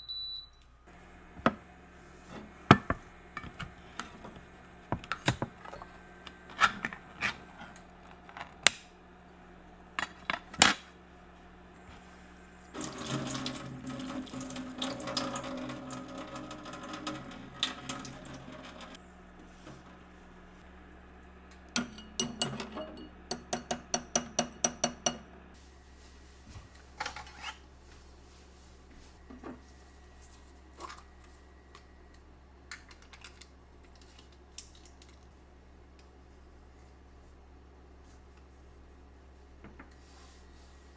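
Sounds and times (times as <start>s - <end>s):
tap running: 0.9s - 7.4s.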